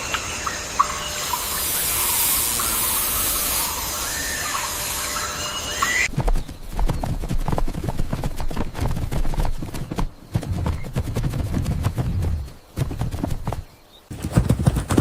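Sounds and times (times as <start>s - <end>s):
steady hiss: 0.0s - 6.1s
horse hooves clip-clopping: 6.1s - 15.0s.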